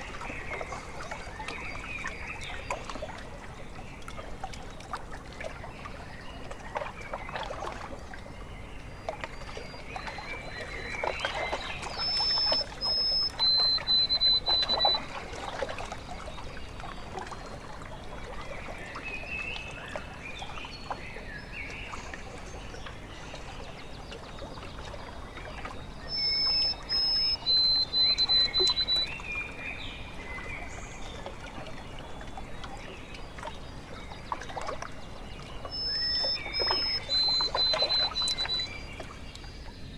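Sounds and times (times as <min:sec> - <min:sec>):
small waves lapping: 0:00.0 - 0:39.9
birds singing: 0:08.5 - 0:39.9
bird whistling high notes: 0:11.9 - 0:15.0, 0:26.1 - 0:29.1, 0:35.8 - 0:38.7.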